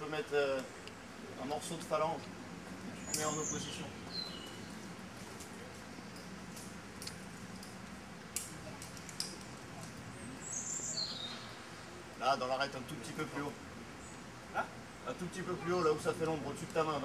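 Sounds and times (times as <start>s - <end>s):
bird chirp: 2.9s - 4.9s, 10.0s - 11.8s.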